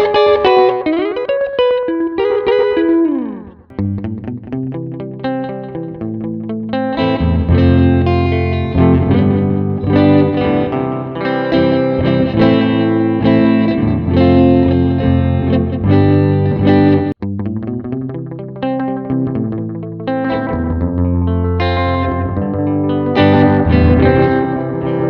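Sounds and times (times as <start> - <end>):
electric guitar with delay echoes: 0.0 - 25.0.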